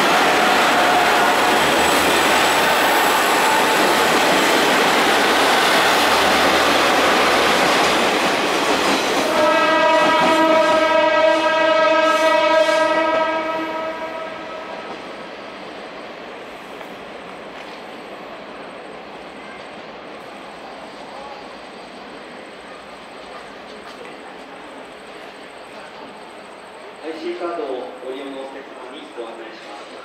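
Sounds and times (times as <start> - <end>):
train rolling past: 0.0 - 30.0
train horn blast: 9.3 - 14.8.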